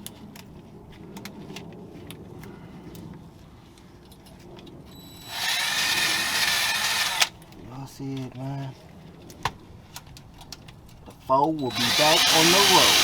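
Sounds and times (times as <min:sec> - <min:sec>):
faint clinks and handling noise: 0:00.0 - 0:05.1
power drill whining: 0:04.9 - 0:07.3, 0:11.6 - 0:13.0.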